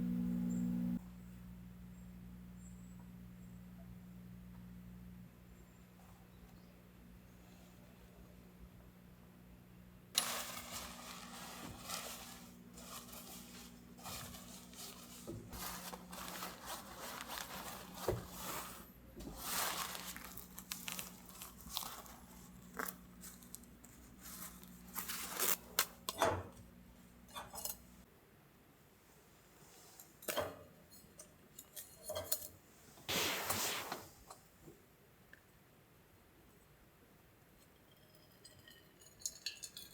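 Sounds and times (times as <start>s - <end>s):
faint low hum: 0.0s - 30.1s
crinkling and rustling: 10.2s - 26.7s, 31.6s - 34.5s.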